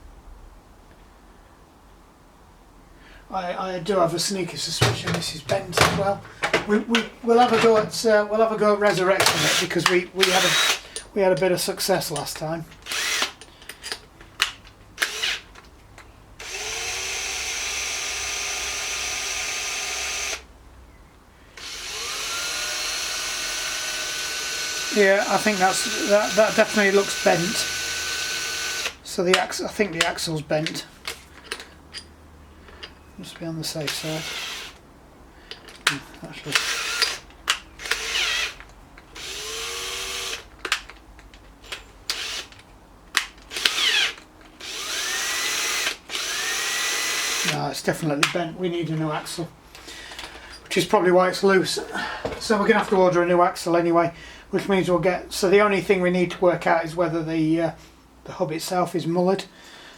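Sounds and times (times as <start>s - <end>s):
power drill whining: 9.2s - 11.0s, 12.8s - 13.5s, 15.0s - 15.5s, 16.4s - 20.5s, 21.6s - 29.0s, 33.9s - 34.8s, 36.5s - 38.6s, 39.2s - 40.5s, 41.6s - 42.6s, 43.5s - 47.6s.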